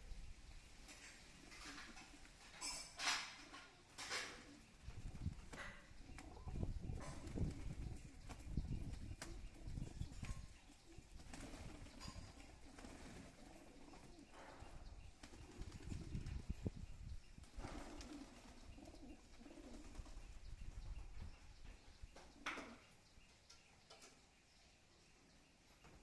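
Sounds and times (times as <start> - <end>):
pigeons cooing: 1.3 - 16.6, 17.4 - 20.5
wings flapping: 3.1 - 10.5, 11.1 - 14.1, 15.2 - 16.5, 17.4 - 20.2.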